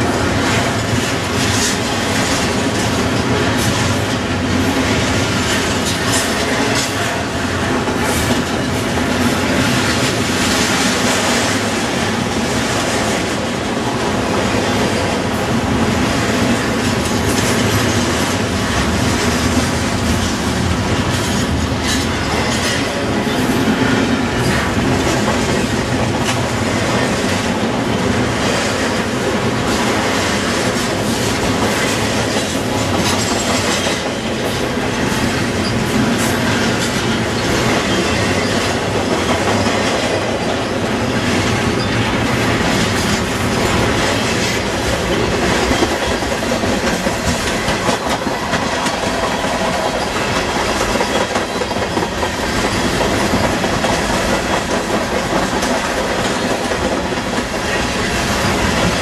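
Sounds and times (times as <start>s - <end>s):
steel wheels rolling on rail: 0.0s - 59.0s
wheels clicking over rail joints: 0.0s - 59.0s.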